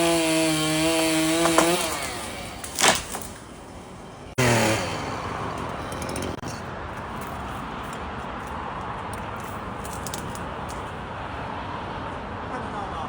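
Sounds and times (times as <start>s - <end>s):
chainsaw engine revving down: 0.0s - 3.6s, 4.3s - 6.4s.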